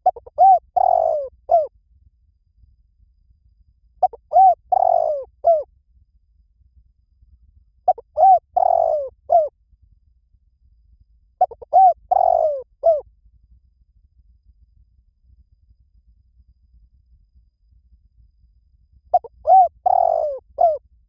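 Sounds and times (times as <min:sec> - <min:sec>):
dove cooing: 0:00.0 - 0:01.7, 0:04.0 - 0:05.6, 0:07.9 - 0:09.5, 0:11.4 - 0:13.0, 0:19.1 - 0:20.8.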